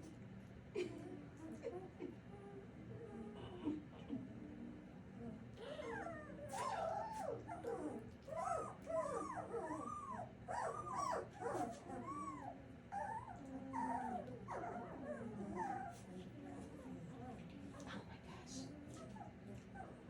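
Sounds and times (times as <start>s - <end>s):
puppies whining and yipping: 5.6s - 16.0s.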